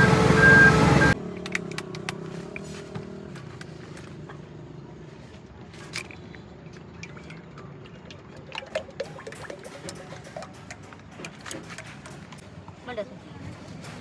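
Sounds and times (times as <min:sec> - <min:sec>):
low engine hum: 0:00.0 - 0:07.7.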